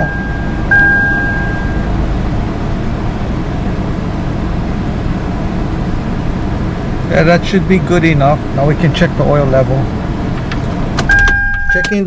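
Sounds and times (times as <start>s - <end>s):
steady high tone: 0.0s - 2.0s
engine idling: 1.5s - 11.7s.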